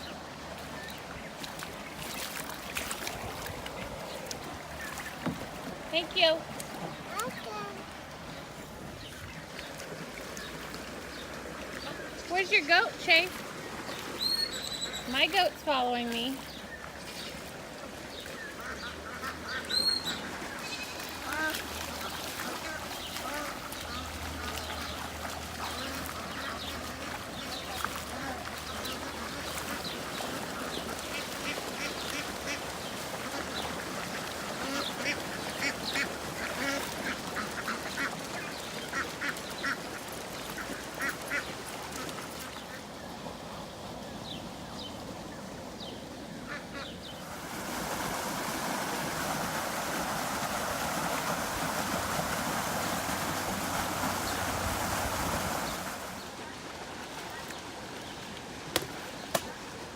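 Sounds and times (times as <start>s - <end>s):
ducks quacking: 18.5s - 42.9s, 46.4s - 47.0s.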